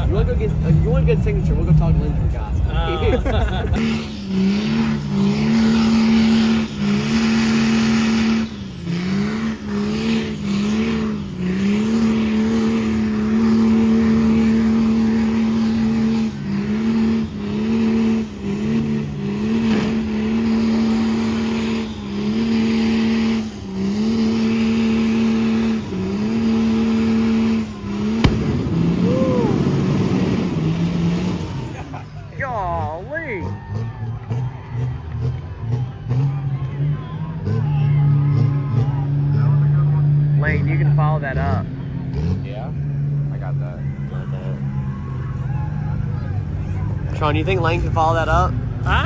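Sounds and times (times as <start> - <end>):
truck engine revving: 0.0 - 49.0
spinning tyres hissing: 3.8 - 33.1
sharp crack: 19.6 - 20.6, 25.5 - 31.9.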